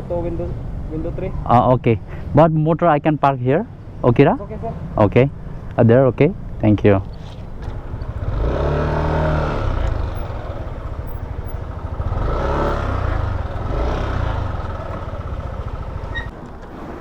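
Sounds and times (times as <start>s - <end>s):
scooter engine running: 6.4s - 17.0s.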